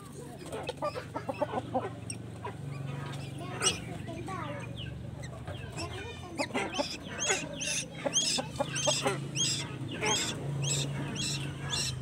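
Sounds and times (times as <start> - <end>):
young bird chirping: 0.6 - 12.0
steady low hum: 1.0 - 12.0.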